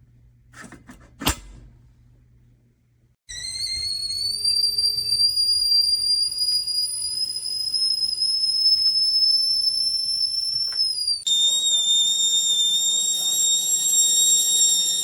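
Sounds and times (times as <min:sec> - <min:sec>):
kettle whistling: 0:03.3 - 0:15.0.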